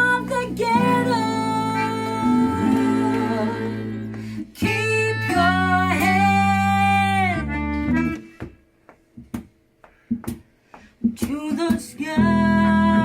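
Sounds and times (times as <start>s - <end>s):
live band playing guitar music: 0.0s - 4.0s, 5.6s - 8.3s
plucked guitar notes: 0.0s - 8.4s.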